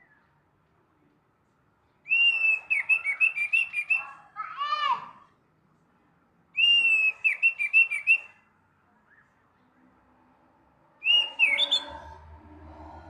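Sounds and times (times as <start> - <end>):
thrush singing: 11.0 - 13.0.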